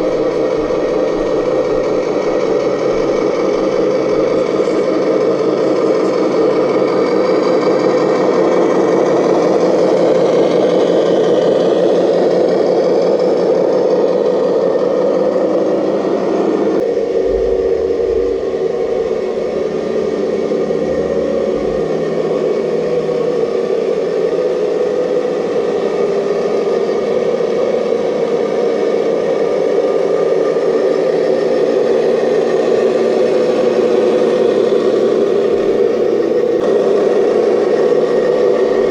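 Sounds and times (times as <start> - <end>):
model excavator motor running: 0.0 - 38.9.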